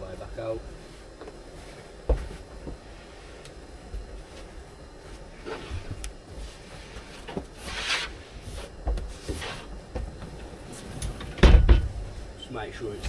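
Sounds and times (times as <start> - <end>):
long scrape: 7.6 - 8.6.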